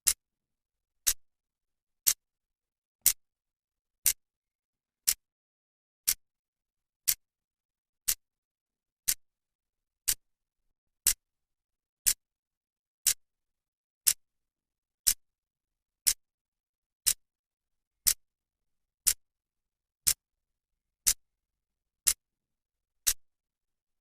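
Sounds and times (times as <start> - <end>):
clock ticking: 9.0 - 9.2, 10.0 - 10.2.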